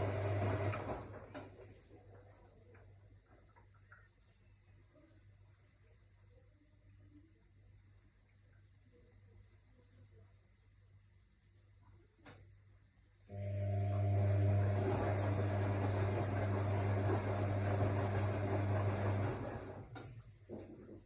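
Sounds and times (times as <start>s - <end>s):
washing machine humming: 0.0s - 4.0s, 13.3s - 20.6s.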